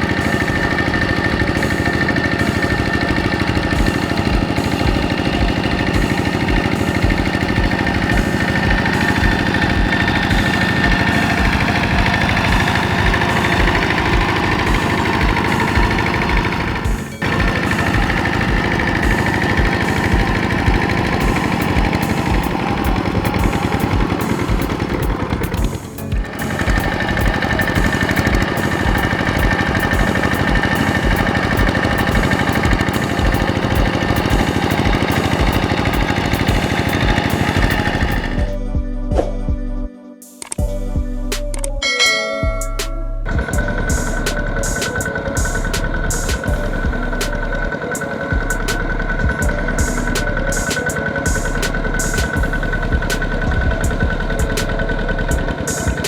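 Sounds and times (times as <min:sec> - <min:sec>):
tractor engine chugging: 0:00.0 - 0:38.6, 0:42.0 - 0:56.0.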